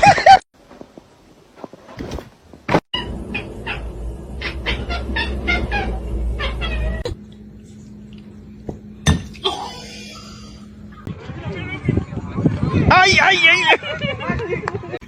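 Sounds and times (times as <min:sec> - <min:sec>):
low hum: 0:03.0 - 0:12.8.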